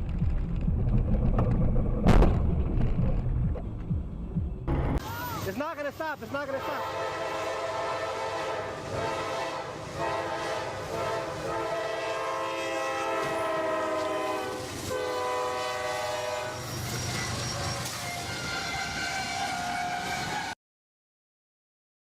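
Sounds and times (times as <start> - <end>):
train horn blasts: 6.6 - 20.6.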